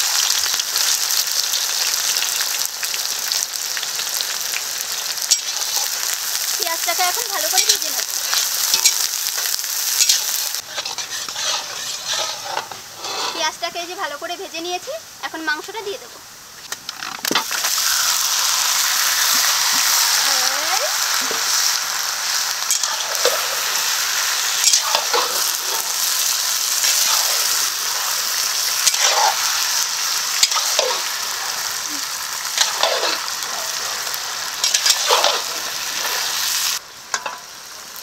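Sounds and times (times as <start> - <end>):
chicken sizzling in hot oil: 0.0 - 16.1, 16.9 - 38.0
metal spatula scraping: 7.4 - 13.6, 22.7 - 36.5.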